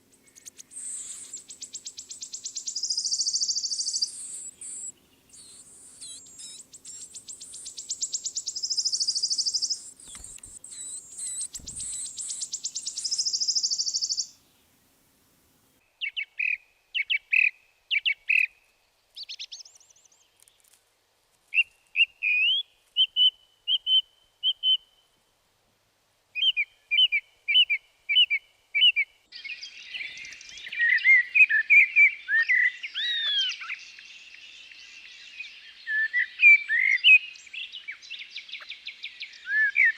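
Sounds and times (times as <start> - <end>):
small songbirds chirping: 0.0 - 14.9, 15.8 - 25.2, 26.4 - 39.9.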